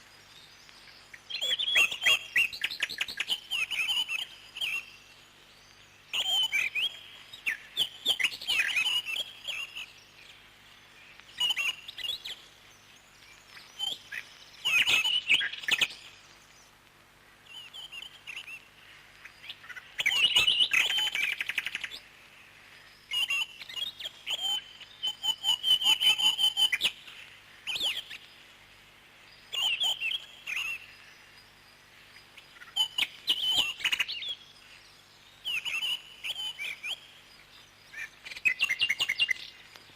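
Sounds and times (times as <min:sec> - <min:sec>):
parrots chirping: 0:06.1 - 0:09.9.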